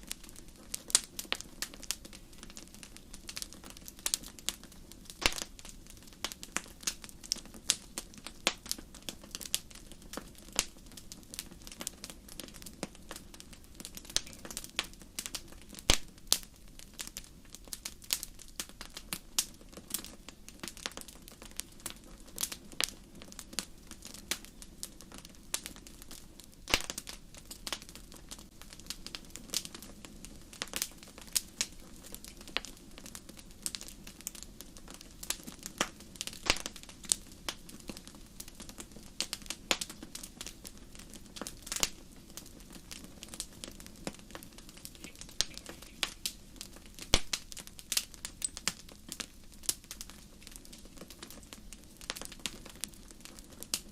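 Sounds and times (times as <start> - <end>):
hiss of flames: 0.0 - 53.9
wood fire crackling and popping: 0.0 - 53.9.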